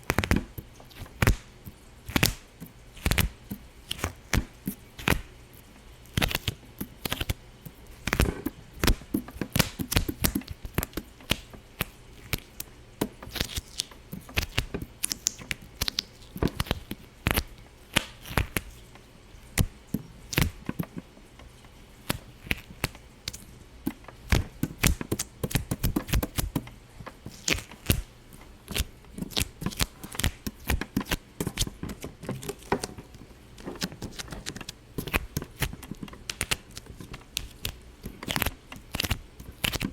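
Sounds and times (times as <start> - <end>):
irregular sharp popping: 22.0 - 39.9.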